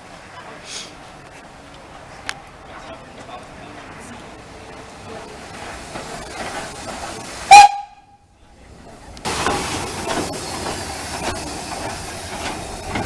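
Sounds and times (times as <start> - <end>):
steam hissing: 4.0 - 8.2, 8.9 - 13.0
steam locomotive whistle toot: 7.3 - 8.3.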